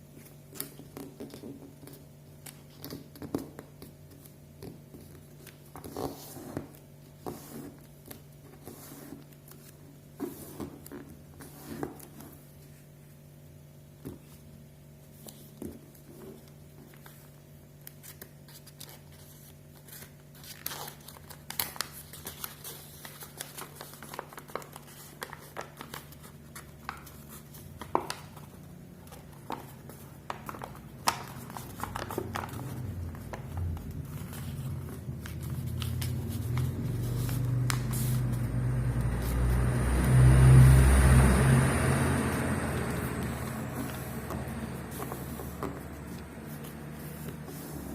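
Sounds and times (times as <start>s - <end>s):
paper being folded and creased: 0.1s - 13.1s, 14.0s - 39.3s, 42.7s - 47.9s
paper crinkles and taps: 0.2s - 12.4s, 15.1s - 38.2s
low rumbling noise: 31.8s - 47.9s.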